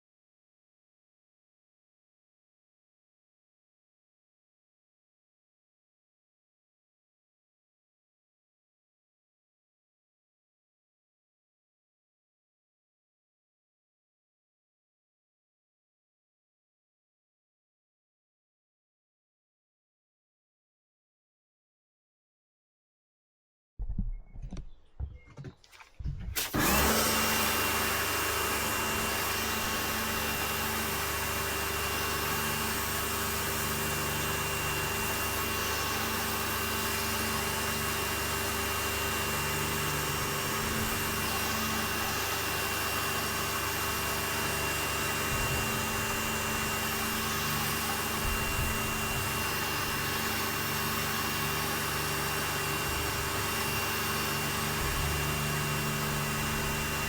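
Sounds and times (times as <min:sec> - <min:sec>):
pressure washer spraying: 0:26.4 - 0:31.0.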